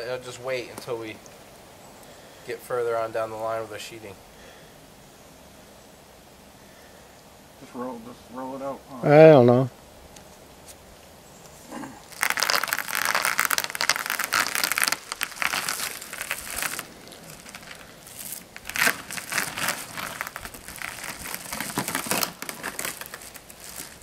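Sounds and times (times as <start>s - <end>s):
sheeting crinkling as unrolled: 11.7s - 24.0s.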